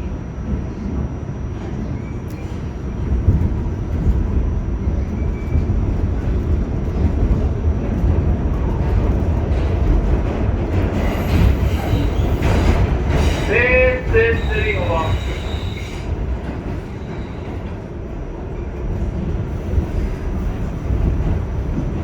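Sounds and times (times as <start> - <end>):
subway train wheels rumbling: 0.0 - 22.0.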